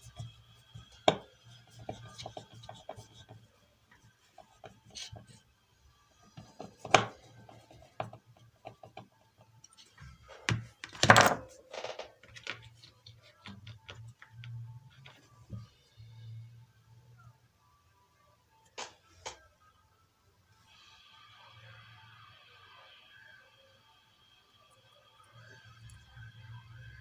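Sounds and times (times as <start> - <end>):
tools clicking and knocking: 10.3 - 14.3
tools clattering: 10.4 - 12.6.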